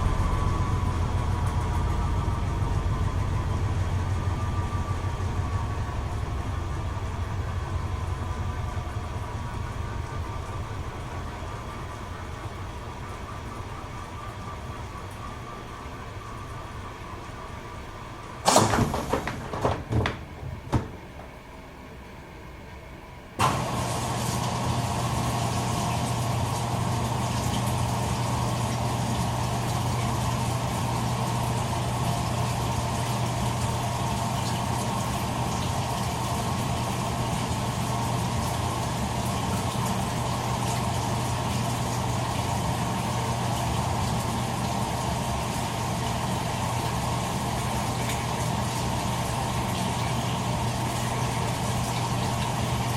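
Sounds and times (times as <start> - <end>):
washing machine motor humming: 0.0 - 52.9
washing machine clicks and knocks: 18.5 - 21.5.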